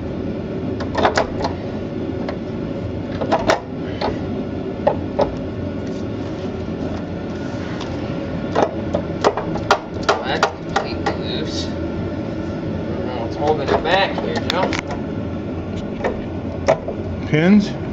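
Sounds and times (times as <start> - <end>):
steady background hum: 0.0 - 17.9.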